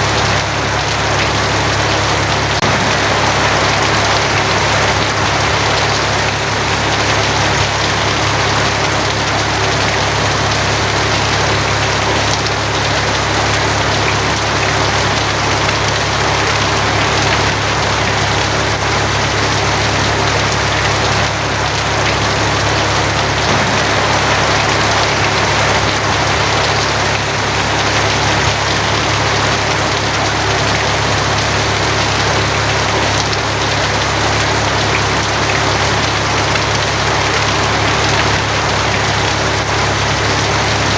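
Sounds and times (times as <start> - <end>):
heavy rain on a tin roof: 0.0 - 40.9
low hum: 2.6 - 6.8, 23.5 - 28.9.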